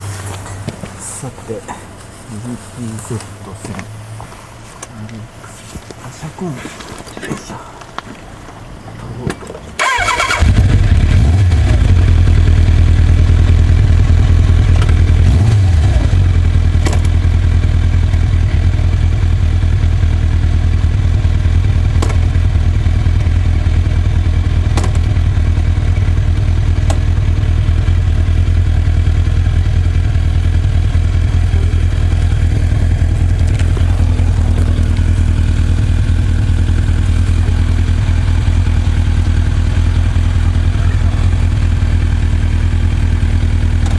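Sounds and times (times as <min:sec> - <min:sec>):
motorcycle engine idling: 0:09.8 - 0:43.9.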